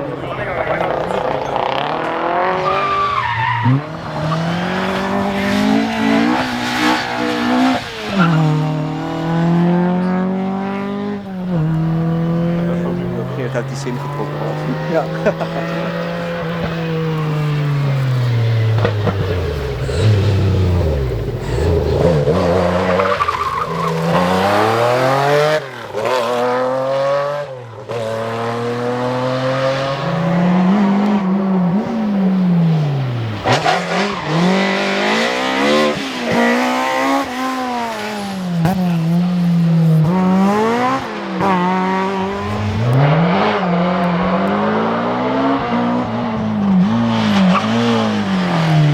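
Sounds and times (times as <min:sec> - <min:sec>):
rally car engines revving: 0:00.0 - 0:48.9.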